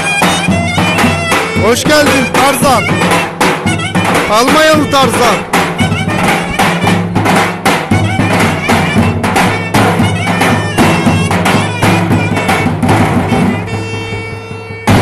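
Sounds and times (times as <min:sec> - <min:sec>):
heavy drum beats: 0:00.0 - 0:15.0
reedy wind instrument melody: 0:00.0 - 0:15.0.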